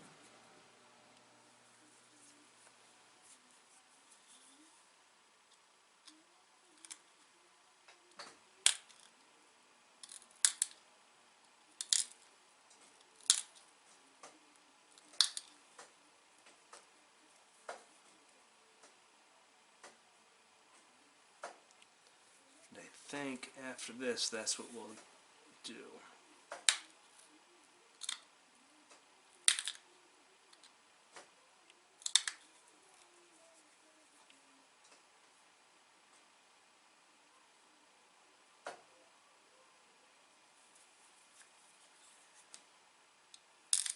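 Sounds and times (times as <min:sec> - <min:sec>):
stone flakes clicking off: 0:32.0 - 0:32.4.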